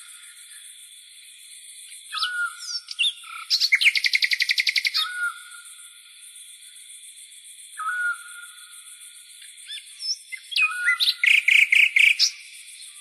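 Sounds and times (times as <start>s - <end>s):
bird whistling and trilling: 2.1s - 5.5s, 7.8s - 8.4s, 9.7s - 12.3s.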